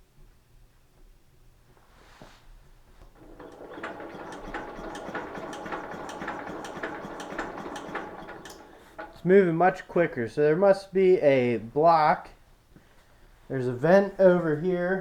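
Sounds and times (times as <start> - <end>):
starter cranking engine: 3.0 - 10.1.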